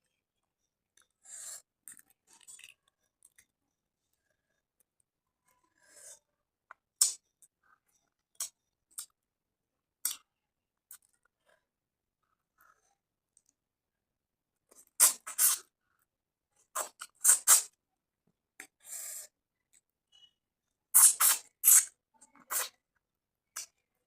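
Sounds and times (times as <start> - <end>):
mouth smacking and chewing: 10.0 - 10.2
slurp: 14.7 - 15.7, 16.8 - 17.8, 21.0 - 22.8.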